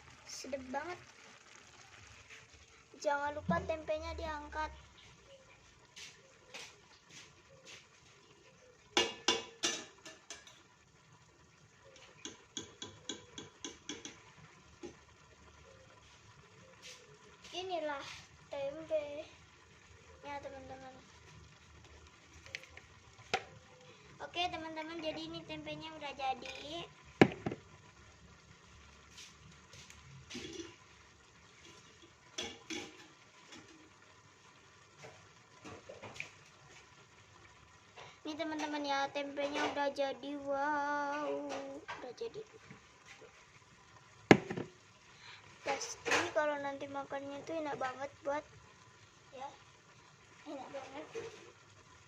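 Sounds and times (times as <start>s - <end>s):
stir-fry simmering and bubbling: 0.0s - 52.0s
utensil knocking against a pan: 9.0s - 10.5s, 12.2s - 14.2s, 27.2s - 27.6s, 44.3s - 44.7s.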